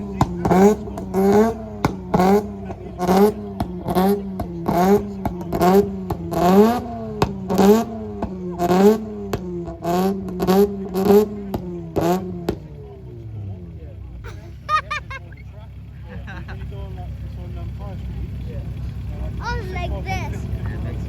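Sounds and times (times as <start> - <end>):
exhaust crackles and bangs: 0.0 - 13.1
car engine revving high: 0.0 - 21.0.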